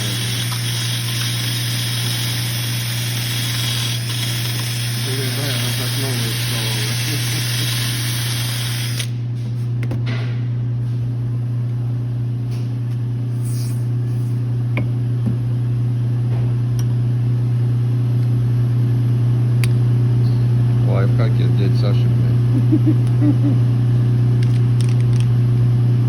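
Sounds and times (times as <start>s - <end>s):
loud hiss: 0.0s - 9.1s
steady low hum: 0.0s - 26.0s.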